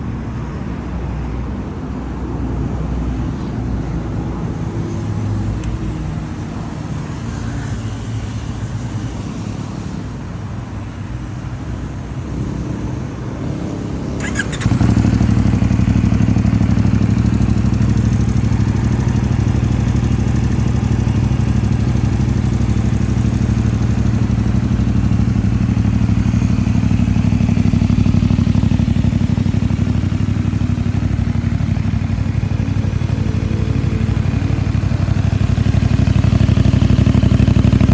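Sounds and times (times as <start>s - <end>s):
motorcycle engine running: 11.0s - 37.9s.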